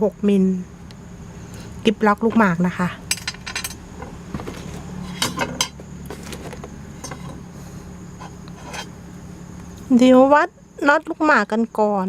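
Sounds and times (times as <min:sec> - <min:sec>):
steady low hum: 0:00.0 - 0:12.0
light metal clicks and clinks: 0:03.1 - 0:03.8.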